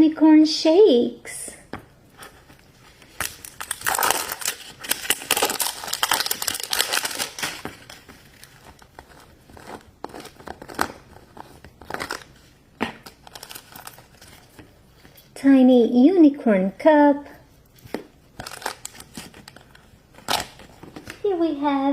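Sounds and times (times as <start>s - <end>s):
packaging tearing and crinkling: 2.4s - 14.6s, 18.3s - 21.2s.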